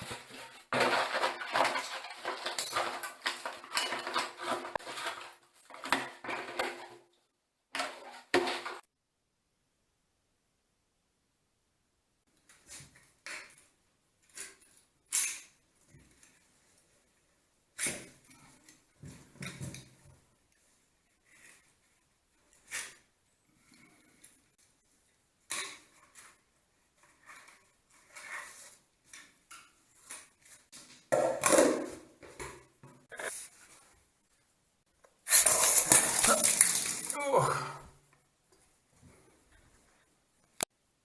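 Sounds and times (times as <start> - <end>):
metal scraping and rattling: 0.0 - 6.8, 35.3 - 37.2
metal parts clicking and clinking: 35.3 - 37.2.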